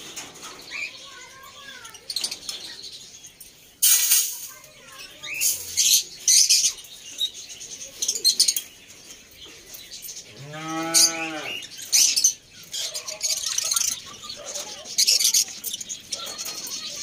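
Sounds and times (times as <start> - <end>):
birds chirping: 0.0 - 17.0
cow mooing: 10.4 - 11.6.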